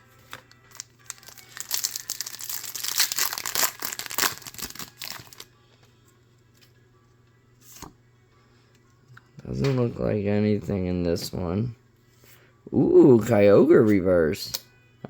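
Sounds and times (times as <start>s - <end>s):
foil wrapper tearing and crinkling: 0.3s - 5.5s.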